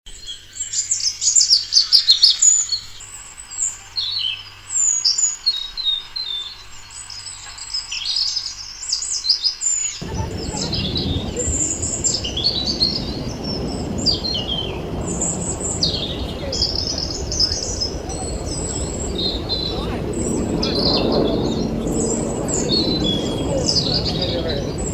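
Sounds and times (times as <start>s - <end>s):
low background rumble: 10.0s - 24.9s
small birds chirping: 10.0s - 24.9s.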